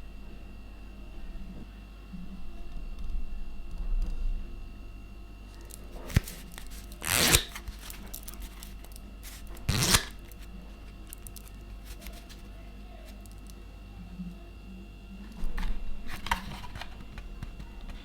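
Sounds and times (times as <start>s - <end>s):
playing cards riffle-shuffled: 5.6s - 13.5s.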